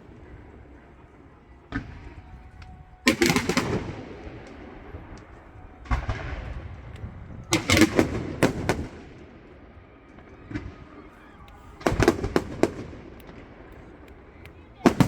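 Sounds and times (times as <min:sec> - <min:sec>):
fireworks bangs and crackles: 0:03.0 - 0:15.0.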